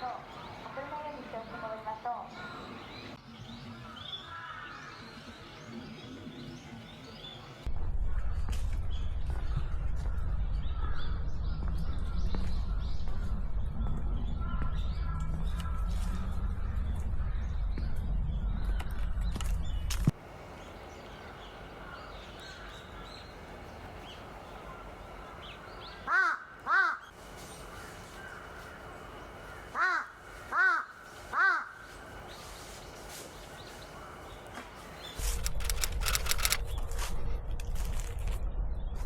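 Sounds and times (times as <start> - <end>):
low rumble: 7.7 - 20.1, 35.3 - 39.0
crow cawing: 26.0 - 27.1, 29.5 - 31.8.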